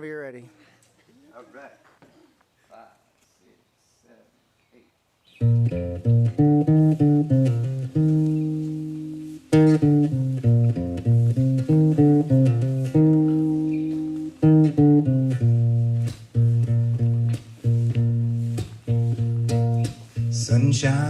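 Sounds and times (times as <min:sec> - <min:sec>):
guitar plucking slow melody: 0:05.4 - 0:21.0.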